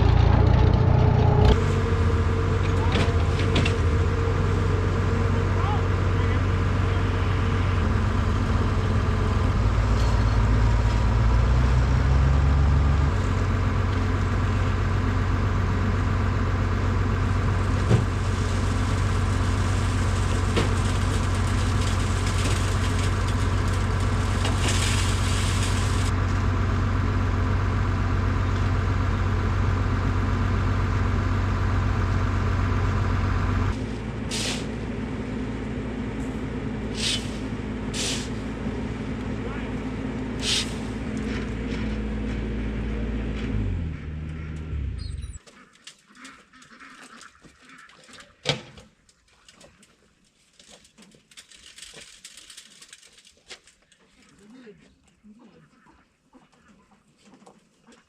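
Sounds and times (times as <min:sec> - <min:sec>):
skid steer engine running: 0:00.0 - 0:45.4
short hisses: 0:34.3 - 0:34.7, 0:37.0 - 0:37.4, 0:38.0 - 0:38.4, 0:40.4 - 0:40.9.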